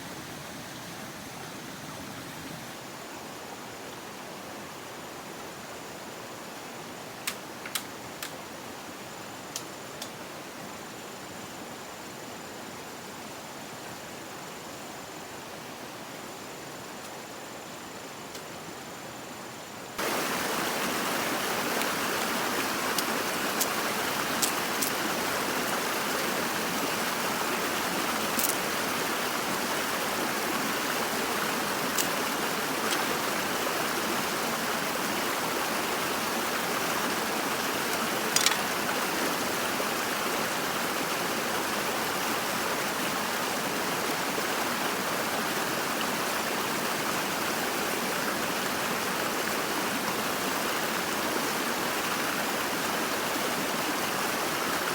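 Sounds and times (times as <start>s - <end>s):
flowing water rushing: 19.9s - 54.9s.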